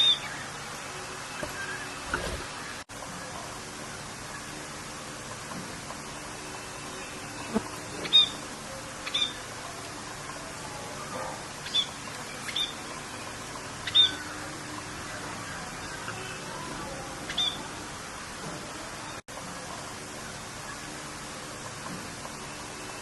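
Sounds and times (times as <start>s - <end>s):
bird chirping: 0.0s - 0.6s, 6.9s - 9.5s, 11.6s - 17.7s
rain hiss: 0.0s - 23.0s.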